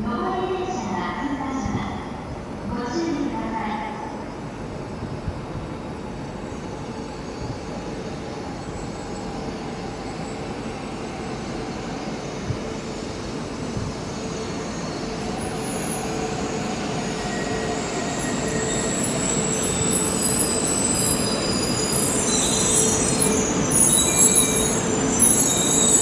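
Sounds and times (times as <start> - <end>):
train rumble: 0.0 - 26.0
brake and wheel squeals: 17.1 - 26.0.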